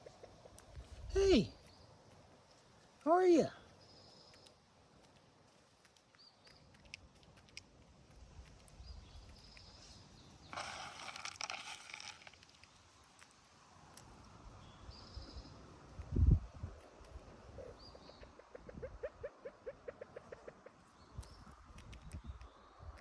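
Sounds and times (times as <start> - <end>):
rustling outdoors: 0.0 - 23.0
scattered ticks: 3.8 - 14.5, 20.0 - 23.0.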